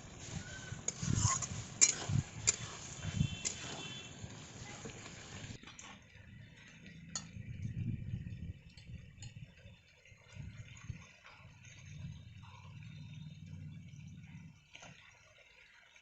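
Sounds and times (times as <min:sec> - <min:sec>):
pot of food hissing: 0:00.0 - 0:05.6.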